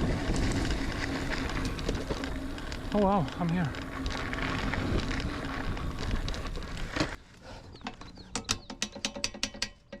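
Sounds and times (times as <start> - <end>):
bicycle freewheel hub clicking: 0.0 - 7.1.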